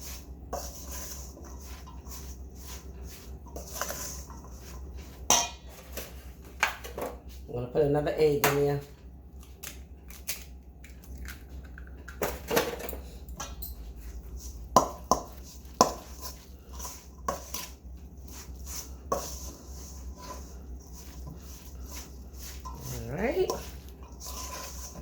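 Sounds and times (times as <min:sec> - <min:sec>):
utensils clattering in a bowl: 0:11.2 - 0:17.7, 0:18.3 - 0:25.0.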